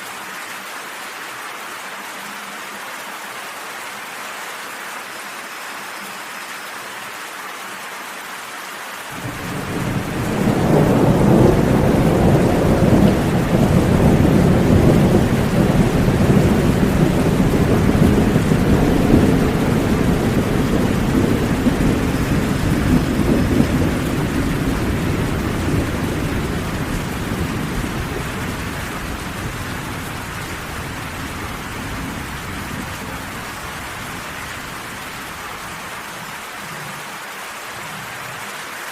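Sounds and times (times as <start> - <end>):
steady rain: 0.0 - 38.9
rolling thunder: 9.2 - 35.6.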